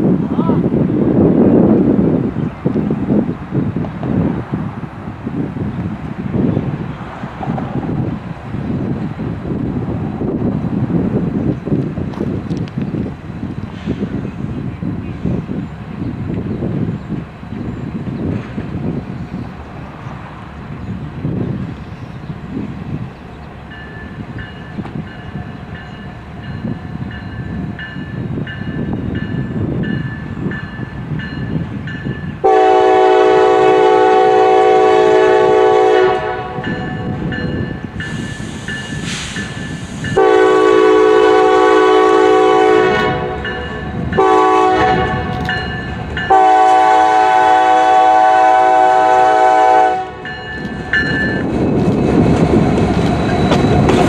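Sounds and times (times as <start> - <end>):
locomotive engine rumble: 0.0 - 54.0
locomotive bell dinging: 23.7 - 32.5, 36.6 - 40.3, 43.3 - 44.4, 45.4 - 46.6, 50.2 - 51.8
locomotive air horn blasts: 32.4 - 37.0, 40.1 - 45.4, 46.3 - 50.3.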